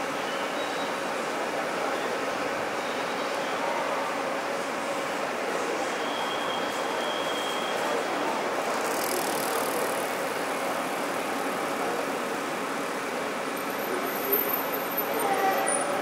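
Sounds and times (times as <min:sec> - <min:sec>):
bicycle riding past: 0:07.7 - 0:16.0.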